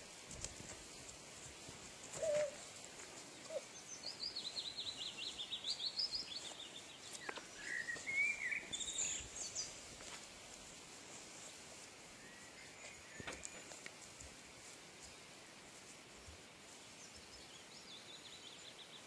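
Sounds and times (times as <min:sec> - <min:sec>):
outdoor background hiss: 0:00.0 - 0:19.0
songbird trilling and whistling: 0:07.2 - 0:09.7.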